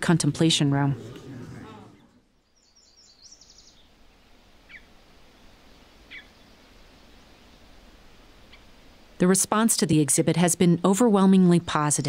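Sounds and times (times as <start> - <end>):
low background hiss: 0.0 - 12.0
bird chirps: 2.4 - 3.9, 6.1 - 6.9.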